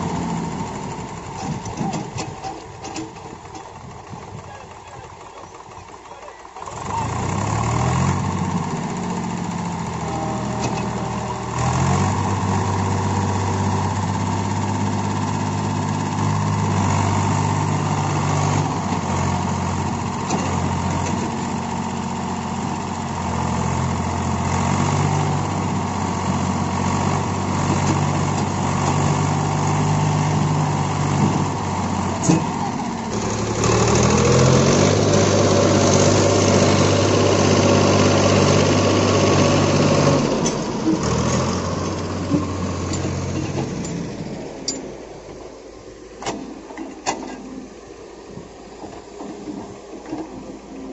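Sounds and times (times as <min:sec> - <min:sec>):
diesel engines running: 0:00.0 - 0:50.9
engine revving up: 0:06.7 - 0:43.7.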